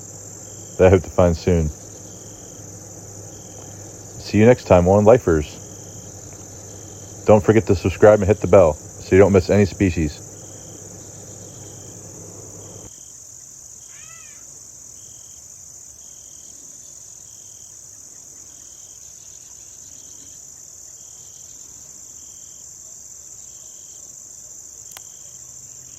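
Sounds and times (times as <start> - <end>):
low hum: 0.0 - 12.9
insect short chirps: 0.0 - 15.4
insects trilling: 0.0 - 25.9.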